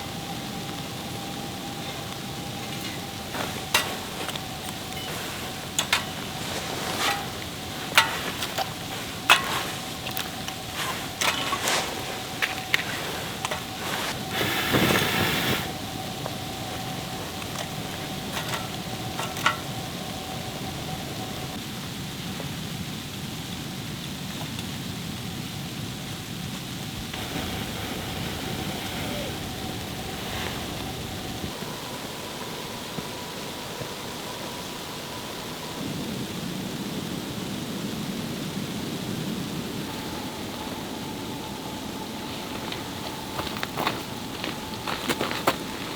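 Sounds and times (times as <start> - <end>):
food sizzling on a grill: 0.0 - 34.4
wind and snow noise: 0.0 - 45.9.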